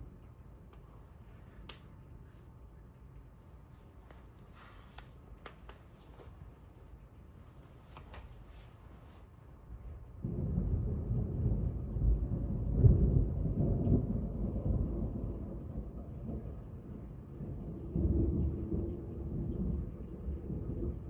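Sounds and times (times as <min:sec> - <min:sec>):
thunder rumbling: 0:10.2 - 0:16.7.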